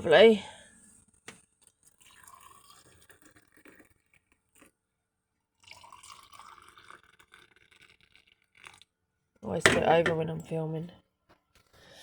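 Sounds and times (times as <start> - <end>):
water pouring into a mug: 1.9 - 4.7, 5.6 - 8.9.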